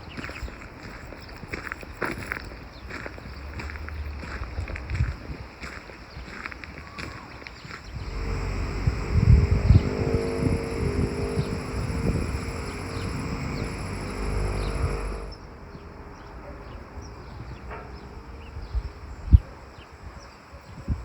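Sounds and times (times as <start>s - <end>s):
steady hum with insect-like buzz: 6.0s - 15.9s.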